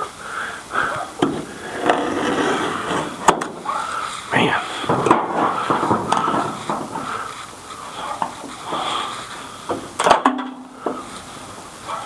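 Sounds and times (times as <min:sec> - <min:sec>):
knocks: 0:04.8 - 0:07.3.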